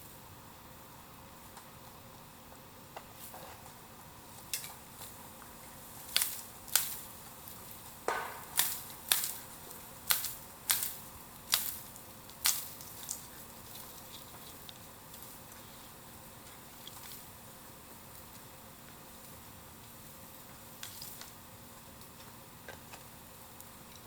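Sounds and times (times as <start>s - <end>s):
fire hissing: 0.0s - 23.9s
bamboo cracking and popping: 6.0s - 15.3s.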